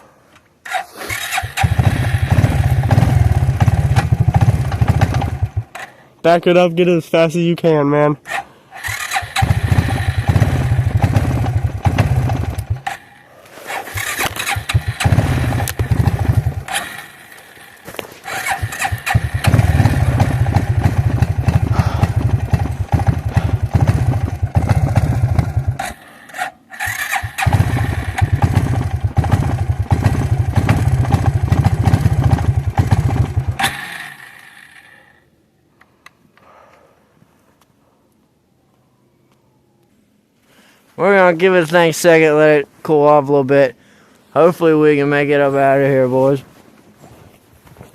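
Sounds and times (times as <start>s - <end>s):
wheels spinning in snow: 0.7s - 5.8s, 8.8s - 35.2s
quad bike engine revving: 0.7s - 5.9s, 8.3s - 35.2s.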